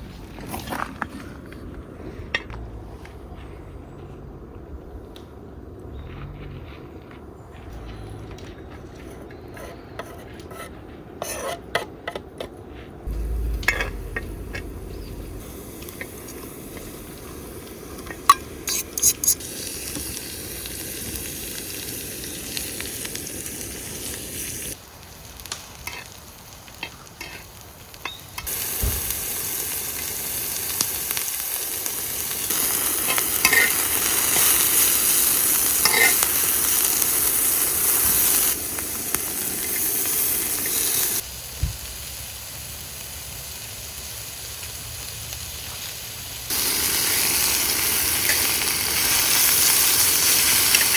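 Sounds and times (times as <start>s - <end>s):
food sizzling in a pan: 13.1s - 50.9s.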